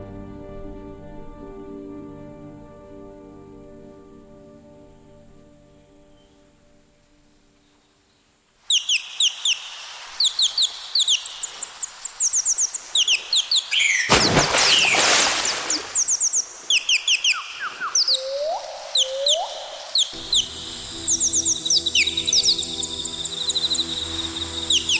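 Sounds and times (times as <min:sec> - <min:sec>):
small birds chirping: 0:07.6 - 0:24.9
loud harsh bird call: 0:08.7 - 0:24.9
short rising bird calls: 0:08.7 - 0:24.9.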